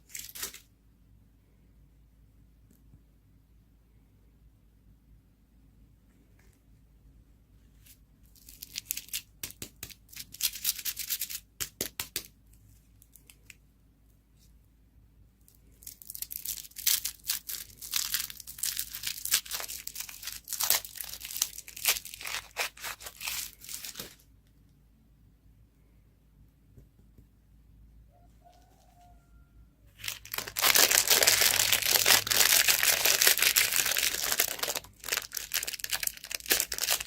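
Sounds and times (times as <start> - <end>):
crinkly wrapper tearing and crumpling: 0.0 - 0.6, 8.3 - 11.8, 15.6 - 24.2, 30.0 - 37.0.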